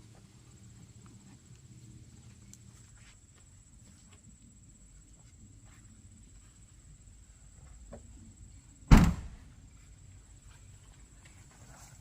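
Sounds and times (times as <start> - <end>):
car door shutting: 8.9 - 9.4.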